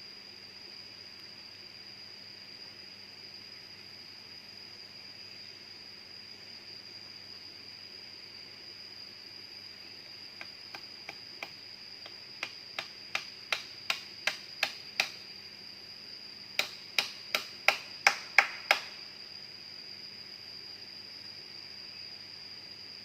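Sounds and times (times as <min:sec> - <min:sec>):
high-pitched insect drone: 0:00.0 - 0:23.0
sharp taps or knocks: 0:12.4 - 0:15.2.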